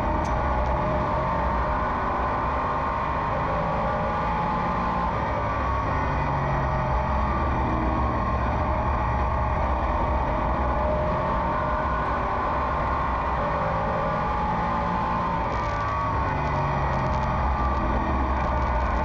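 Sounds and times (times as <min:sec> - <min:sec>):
race car engine running hard: 0:00.0 - 0:19.0.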